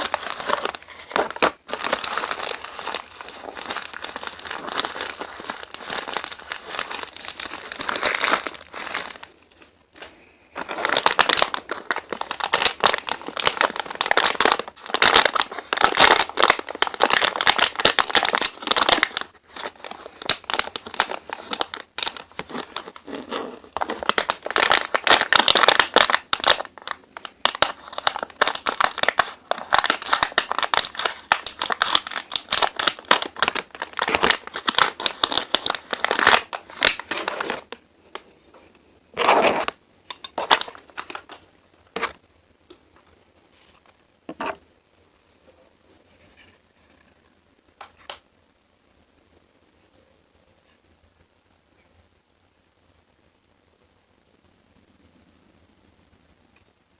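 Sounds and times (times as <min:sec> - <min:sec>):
packaging crinkling: 0:00.0 - 0:37.8, 0:39.1 - 0:42.2.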